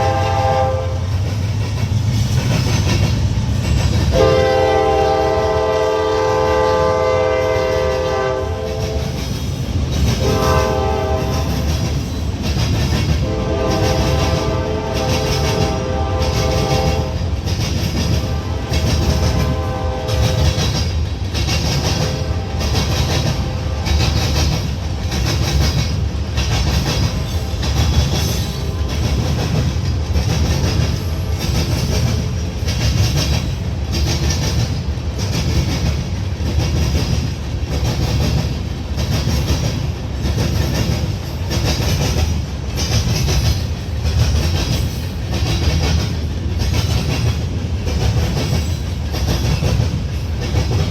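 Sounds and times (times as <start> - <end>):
train horn chord: 0.0 - 1.1, 4.1 - 9.1, 10.2 - 11.7, 13.2 - 17.3, 18.2 - 20.8, 21.9 - 24.4, 27.2 - 29.5
train wheels clacking over rail joints: 0.0 - 50.9.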